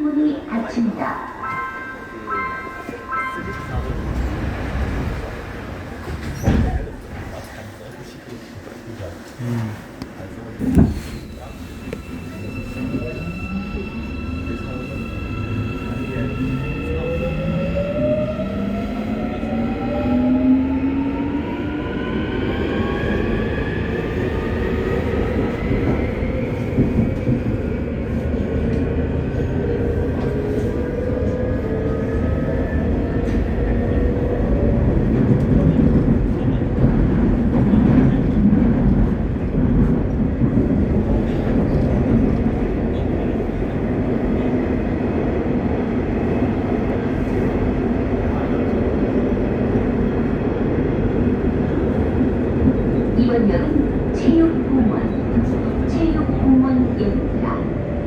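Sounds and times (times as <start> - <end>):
train rumbling on rails: 0.0 - 58.0.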